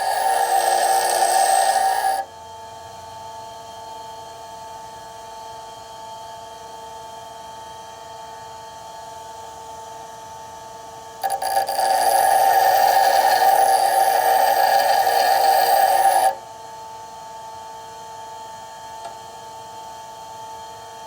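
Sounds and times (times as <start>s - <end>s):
bench grinder humming: 0.0s - 2.3s, 11.2s - 16.4s
drill bit grinding on wheel: 0.0s - 2.3s, 11.2s - 16.4s.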